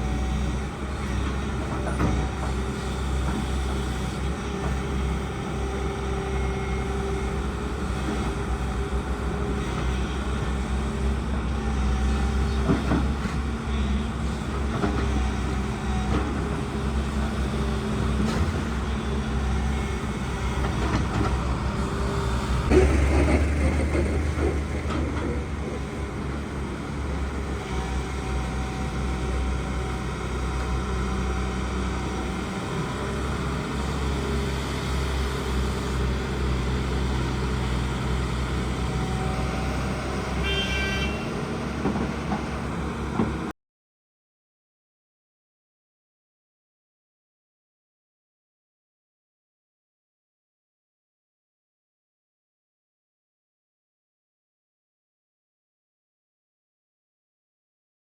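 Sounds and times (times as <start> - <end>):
excavator diesel engine droning: 0.0 - 43.5.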